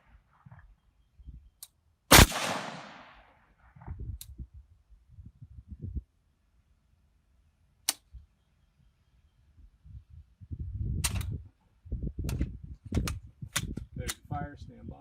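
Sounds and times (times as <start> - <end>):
gunshot with echo: 2.1 - 3.2.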